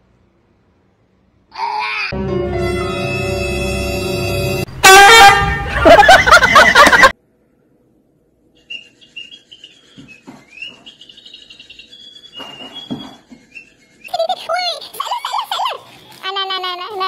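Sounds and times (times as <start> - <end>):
small bird chirping: 8.5 - 14.6.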